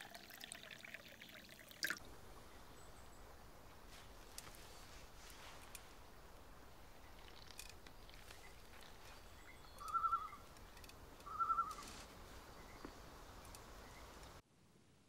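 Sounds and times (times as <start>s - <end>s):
bird warbling trilled calls: 6.7s - 14.2s
tiny bird chirps: 8.2s - 10.5s, 11.2s - 11.9s.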